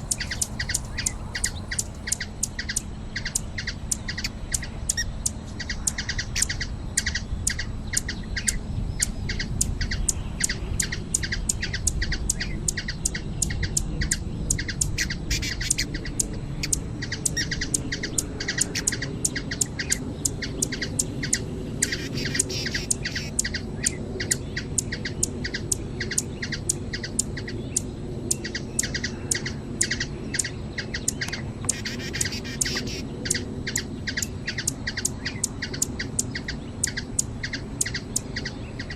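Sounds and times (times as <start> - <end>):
low background rumble: 0.0 - 2.4
hummingbird chipping calls: 0.0 - 2.7, 18.5 - 23.6, 28.4 - 38.9
faint twittering: 0.0 - 3.4, 17.4 - 38.9.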